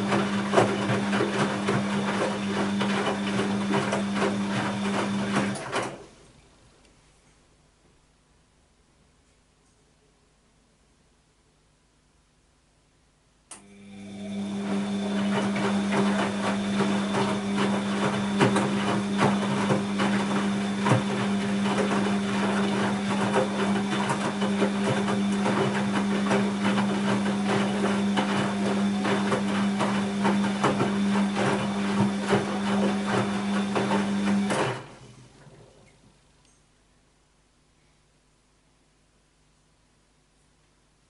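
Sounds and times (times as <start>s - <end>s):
washing machine running: 0.0s - 6.2s, 13.5s - 36.0s.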